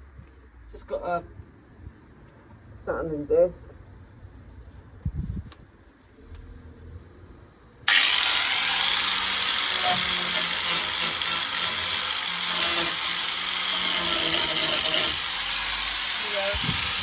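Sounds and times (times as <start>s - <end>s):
angle grinder sanding metal: 7.9s - 17.0s.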